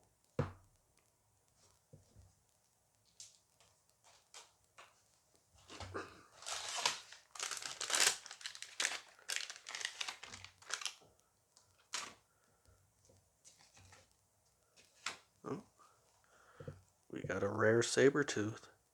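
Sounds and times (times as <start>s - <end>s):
wrapper tearing and crinkling: 6.3s - 11.0s, 11.8s - 12.2s.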